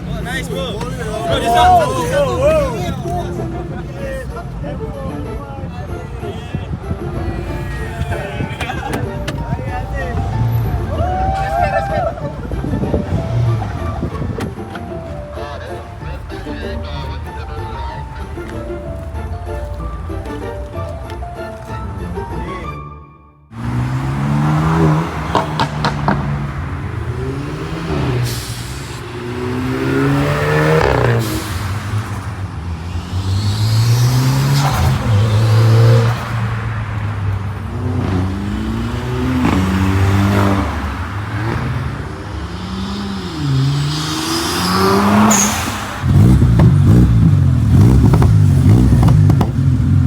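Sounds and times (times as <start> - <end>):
car engines revving: 0.0 - 22.5, 23.5 - 50.0
rough loud exhaust: 6.2 - 17.4, 23.5 - 50.0
sharp exhaust cracks: 23.6 - 50.0.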